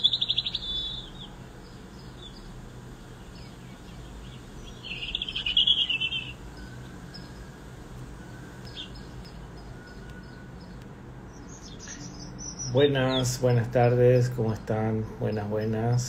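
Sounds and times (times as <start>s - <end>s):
faint high bird chirps: 0.0s - 2.6s, 3.2s - 13.6s
bird fast high trill: 4.3s - 7.5s.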